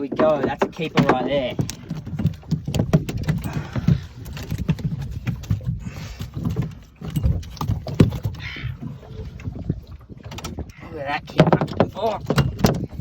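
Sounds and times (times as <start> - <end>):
fish thumping on metal boat floor: 0.0 - 4.0.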